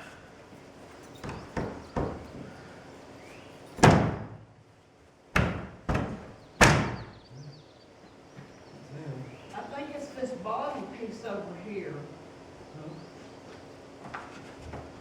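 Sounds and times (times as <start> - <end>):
hard bangs against wooden frame: 1.2 - 2.5, 3.8 - 4.5, 5.3 - 7.2.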